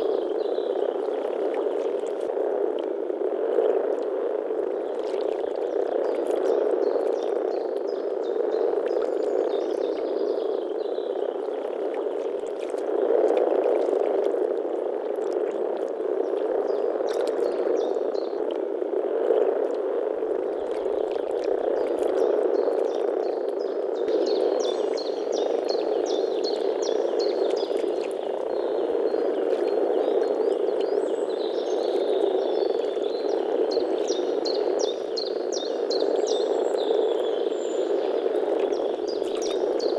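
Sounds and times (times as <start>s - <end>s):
frogs croaking in chorus: 0.0s - 39.9s.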